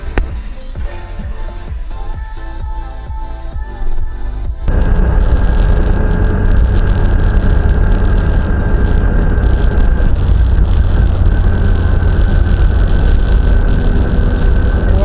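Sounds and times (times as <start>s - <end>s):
music: 0.0s - 4.7s
car road and engine rumble: 4.7s - 15.0s
faint steady whine: 4.7s - 15.0s.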